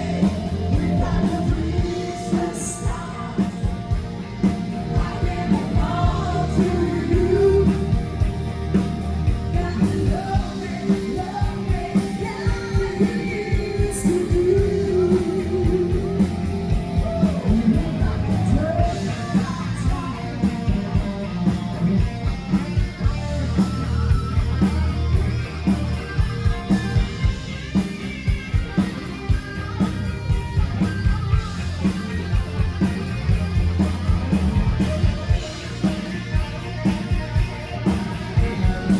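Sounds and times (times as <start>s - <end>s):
live rock band: 0.0s - 38.9s
person singing: 4.9s - 8.4s, 9.5s - 21.5s.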